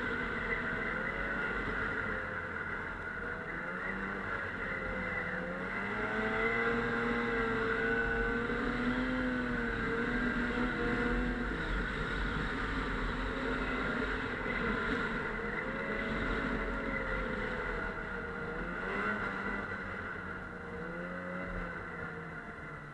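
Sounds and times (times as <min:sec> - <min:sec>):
snowmobile engine running: 0:00.0 - 0:22.9.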